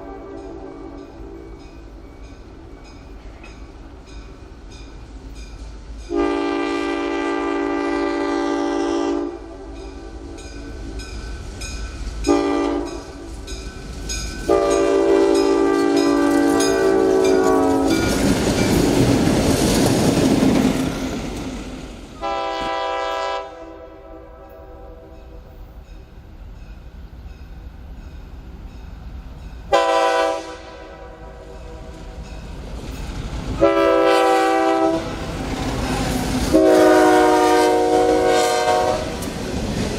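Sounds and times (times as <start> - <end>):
locomotive air horn blasts: 0.0 - 1.6, 6.1 - 10.2, 12.2 - 13.3, 14.5 - 18.0, 22.2 - 25.4, 29.7 - 32.0, 33.6 - 35.2, 36.5 - 39.2
train rumbling past: 0.0 - 39.9.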